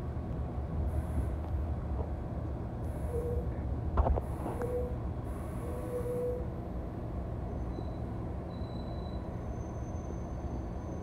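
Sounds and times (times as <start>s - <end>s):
brief tone: 3.0s - 3.5s, 4.6s - 5.0s, 5.6s - 6.5s, 7.5s - 11.0s.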